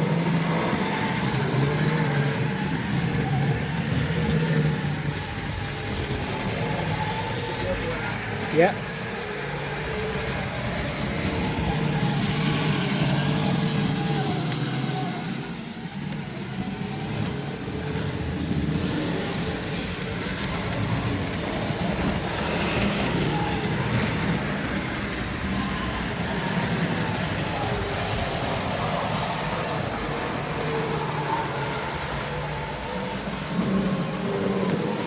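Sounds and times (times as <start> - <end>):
model train motor humming: 0.0 - 35.0
model train wheels rumbling on track: 0.0 - 35.0.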